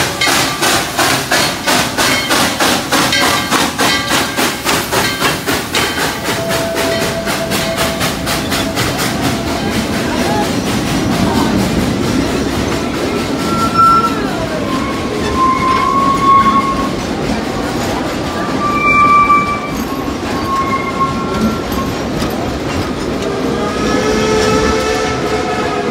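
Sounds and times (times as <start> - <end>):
train wheels rumbling on track: 0.0 - 25.9
wheel squeals: 13.3 - 17.1, 17.8 - 24.8.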